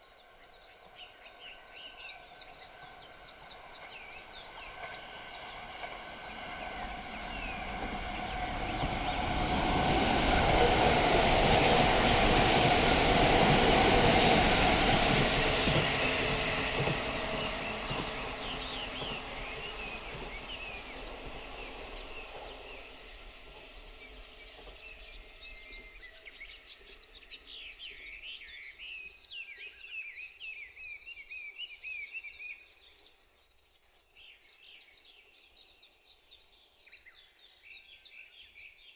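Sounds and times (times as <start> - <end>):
train passing: 2.4 - 25.9
birds chirping: 5.3 - 24.7.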